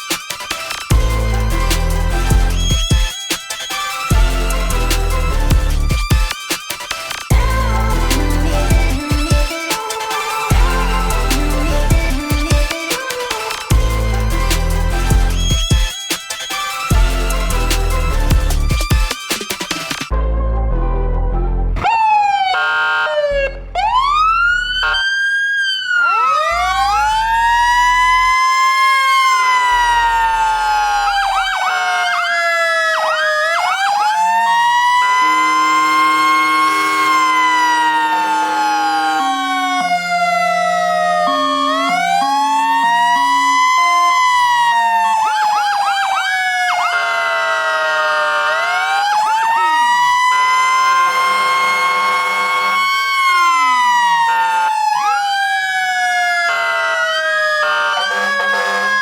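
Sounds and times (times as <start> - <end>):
fire engine siren wailing: 0.0 - 6.4, 7.1 - 19.1, 20.0 - 59.0
steady horn-like tones: 4.1 - 6.0, 7.3 - 15.6, 35.0 - 45.3, 58.0 - 59.0.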